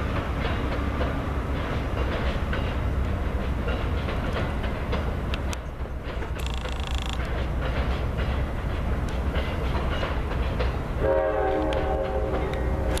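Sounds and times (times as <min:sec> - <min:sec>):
train rumbling: 0:00.0 - 0:13.0
wheel clicks on rail joints: 0:00.1 - 0:10.9
locomotive air horn: 0:11.0 - 0:13.0.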